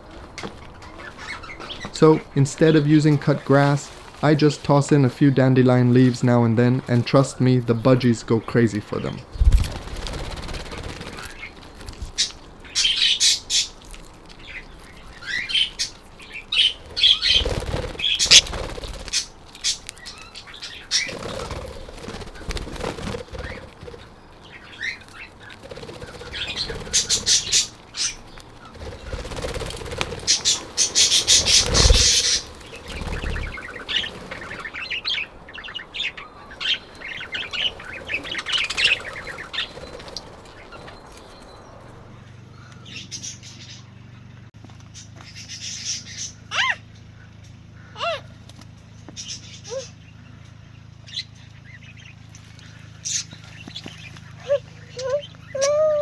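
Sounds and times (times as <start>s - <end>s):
wings flapping: 0.0s - 43.8s
budgerigars chirping: 0.0s - 43.9s
low thumps: 9.1s - 10.1s.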